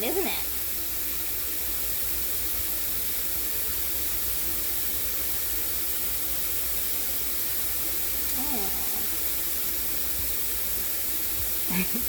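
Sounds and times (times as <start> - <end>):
shower spray hissing: 0.0 - 12.0.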